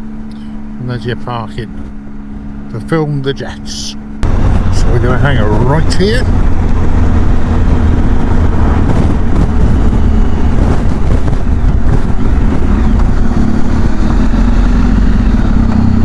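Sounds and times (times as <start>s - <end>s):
motorcycle engine running: 0.0s - 16.0s
wind rushing over microphone: 4.0s - 16.0s.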